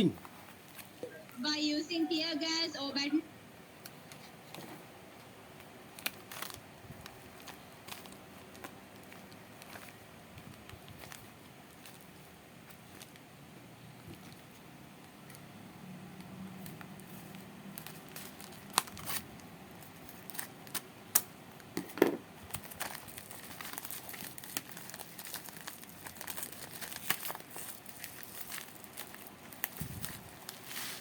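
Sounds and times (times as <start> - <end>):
packaging crinkling and tearing: 5.6 - 13.2, 16.6 - 21.8, 22.4 - 31.0.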